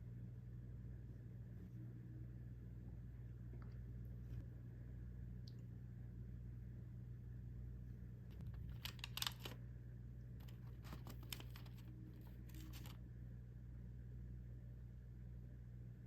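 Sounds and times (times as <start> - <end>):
low room hum: 0.0 - 16.0
plastic packaging crinkling: 8.6 - 9.6, 10.4 - 13.0.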